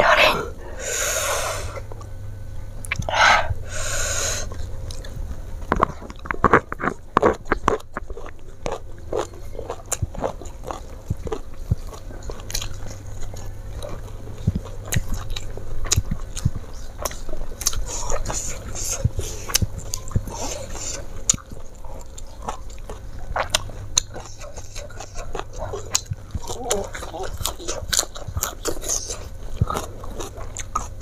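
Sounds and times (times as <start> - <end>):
breath: 0.6 - 1.8, 3.1 - 4.6
wet mouth clicks and smacks: 2.8 - 3.1
person chewing: 2.8 - 31.0.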